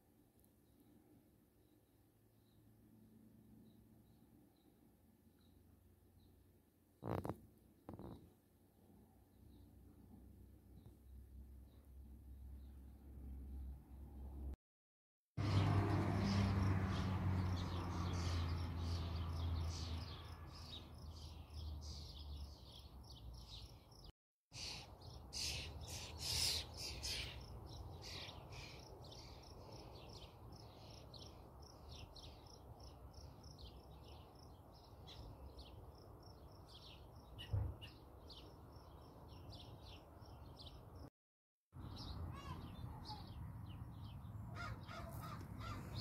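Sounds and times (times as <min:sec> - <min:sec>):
small birds chirping: 0:07.0 - 0:08.2, 0:15.4 - 0:41.1, 0:41.8 - 0:46.0.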